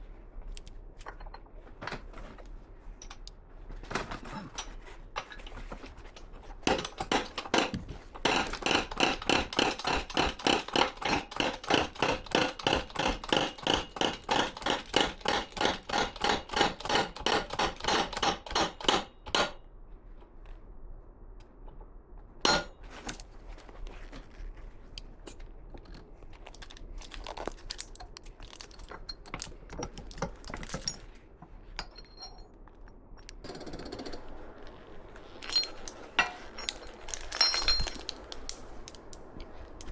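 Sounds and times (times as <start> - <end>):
metal tools clinking: 26.6 - 31.1, 31.8 - 33.3, 35.4 - 39.1.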